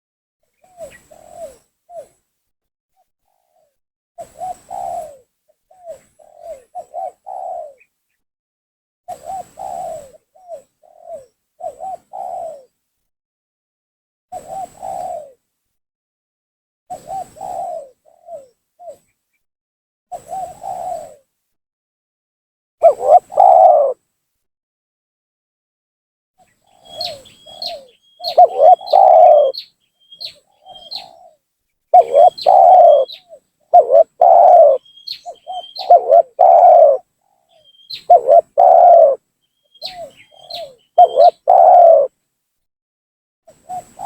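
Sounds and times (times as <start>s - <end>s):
dove cooing: 0.7s - 2.1s, 4.4s - 7.9s, 9.1s - 12.7s, 14.4s - 15.4s, 16.9s - 19.0s, 20.2s - 21.2s, 22.8s - 24.0s, 26.7s - 31.4s, 32.0s - 42.1s.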